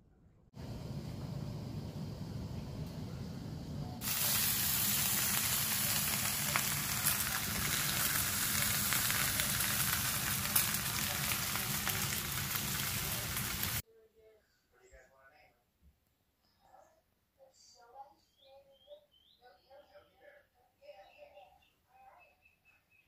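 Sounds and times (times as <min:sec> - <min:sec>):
low steady hum: 0:00.0 - 0:15.0
food sizzling with crackles: 0:04.0 - 0:13.8.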